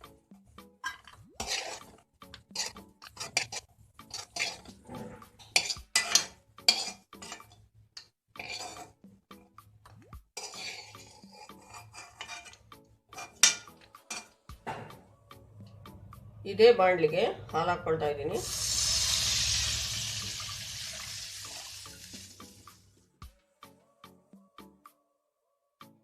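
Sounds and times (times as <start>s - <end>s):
spoon scraping a pan: 0.8s - 9.1s, 10.4s - 14.4s.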